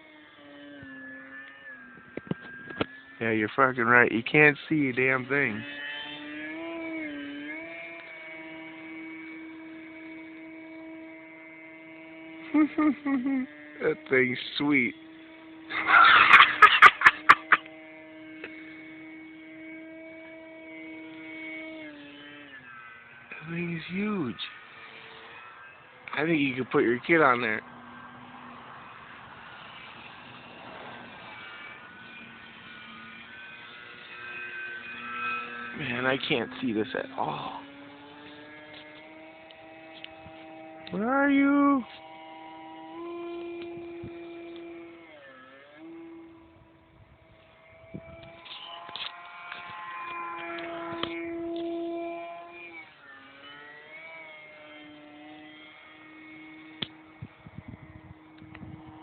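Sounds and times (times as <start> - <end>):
model airplane motor droning whine: 0.0 - 59.0.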